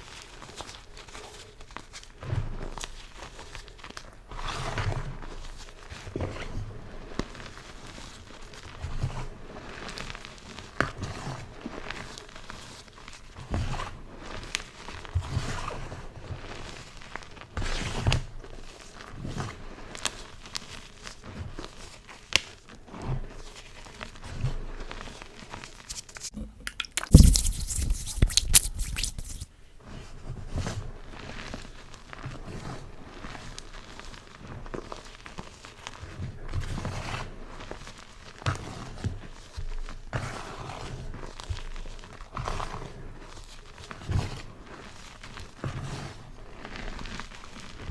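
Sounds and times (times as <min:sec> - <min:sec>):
chalk blocks crunching: 0:25.9 - 0:29.5.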